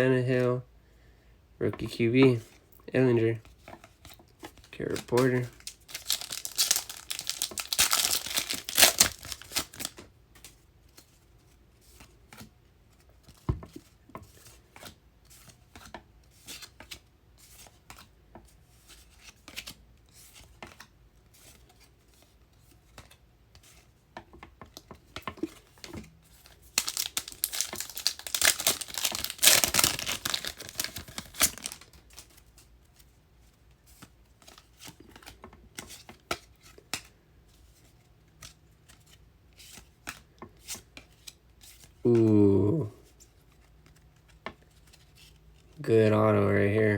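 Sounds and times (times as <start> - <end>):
cards rustling and clicking: 3.2 - 42.3, 43.0 - 45.8
card pack wrappers tearing: 4.7 - 10.0, 26.4 - 32.4.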